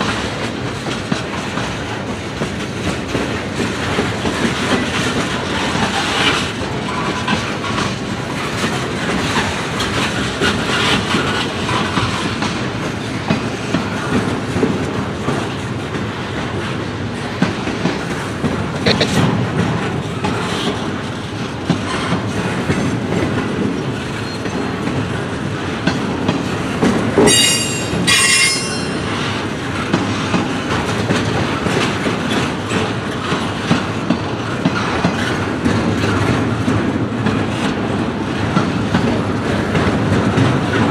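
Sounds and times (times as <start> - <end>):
freight train wheels rumbling: 0.0 - 40.9
high wheel squeals: 27.3 - 29.4.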